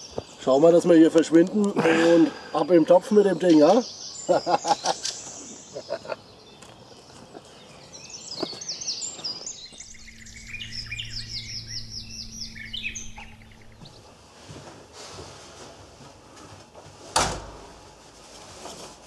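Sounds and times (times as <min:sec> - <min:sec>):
songbirds chirping: 0:00.0 - 0:14.2
steady low hum: 0:09.5 - 0:14.9.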